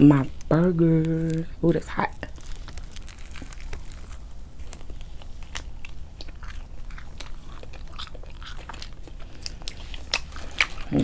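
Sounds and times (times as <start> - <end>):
low steady hum: 0.0 - 11.0
chewing with wet clicks: 4.6 - 11.0.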